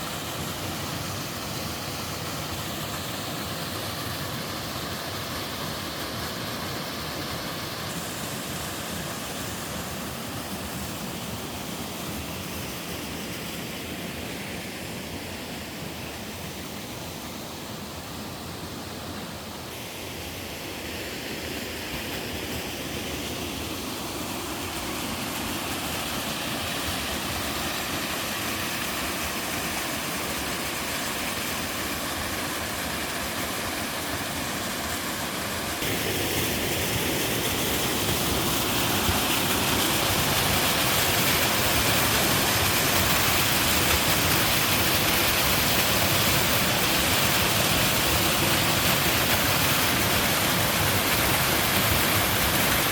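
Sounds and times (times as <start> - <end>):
waterfall rushing: 19.7 - 52.9.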